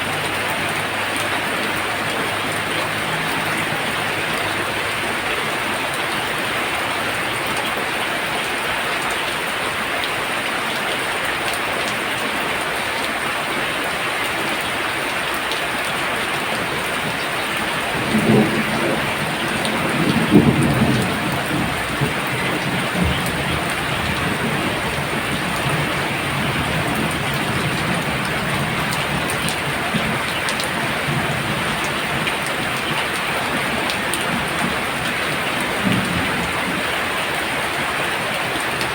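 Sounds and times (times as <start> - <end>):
heavy rain: 0.0 - 38.9
thunder rolling: 16.6 - 37.2.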